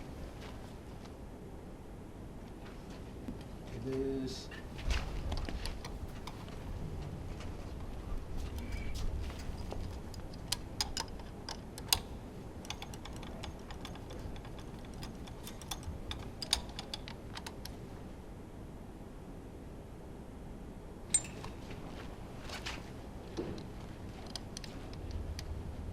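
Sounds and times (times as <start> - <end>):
low steady rumble: 0.0 - 25.9
hand tools clicking and tapping: 9.6 - 17.8
metal engine parts handled: 21.1 - 21.9.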